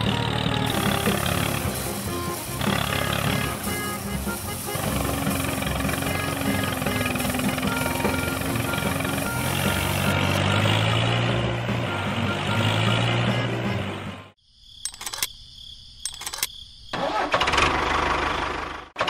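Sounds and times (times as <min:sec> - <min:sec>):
model tractor engine hum: 0:00.0 - 0:14.3, 0:16.1 - 0:19.0
sharp clicks: 0:14.8 - 0:15.4, 0:16.0 - 0:16.6.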